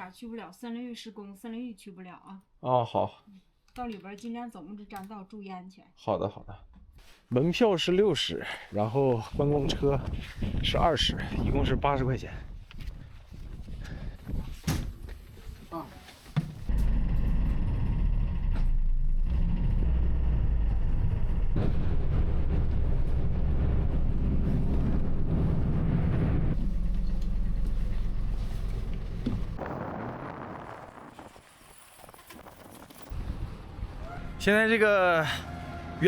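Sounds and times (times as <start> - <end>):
vehicle engine running: 16.7 - 29.6.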